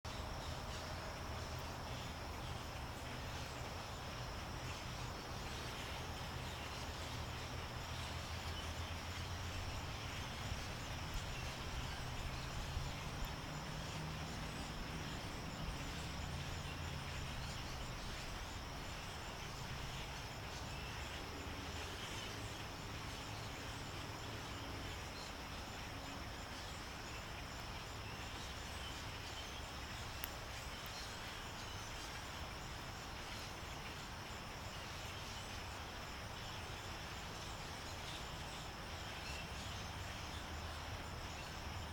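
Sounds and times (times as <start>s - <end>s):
background hiss: 0.1s - 41.9s
insect drone: 0.1s - 41.9s.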